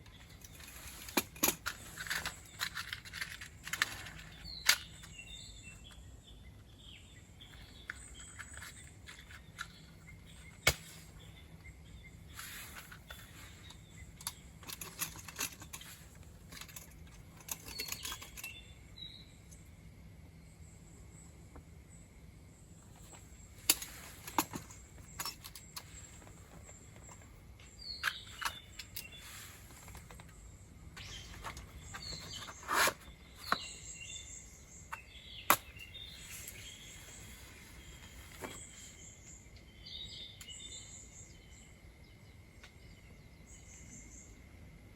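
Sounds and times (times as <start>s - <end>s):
camp gear clicks and knocks: 0.0s - 6.1s, 7.4s - 19.6s, 22.9s - 39.2s
bird chirps: 3.7s - 16.0s, 23.0s - 44.5s.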